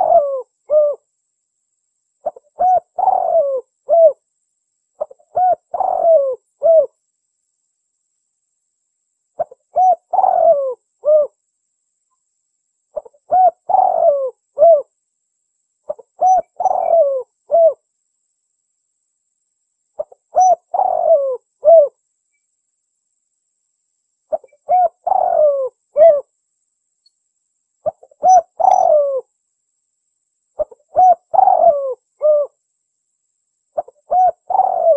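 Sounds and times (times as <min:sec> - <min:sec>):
dove cooing: 0:00.0 - 0:01.0, 0:02.2 - 0:04.2, 0:05.0 - 0:07.0, 0:09.4 - 0:11.4, 0:13.0 - 0:14.9, 0:15.9 - 0:17.8, 0:20.0 - 0:22.0, 0:24.3 - 0:26.3, 0:27.8 - 0:29.3, 0:30.6 - 0:32.6, 0:33.8 - 0:34.9.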